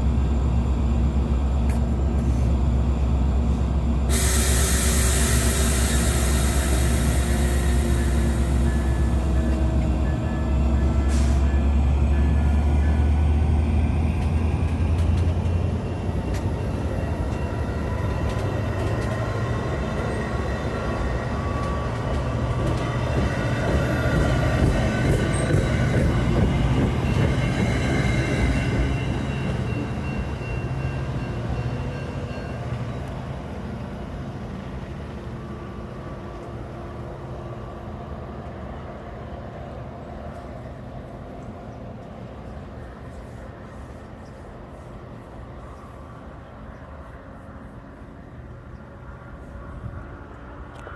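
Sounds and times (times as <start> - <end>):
diesel locomotive rumbling: 0.0 - 50.9
air hiss: 4.1 - 9.1.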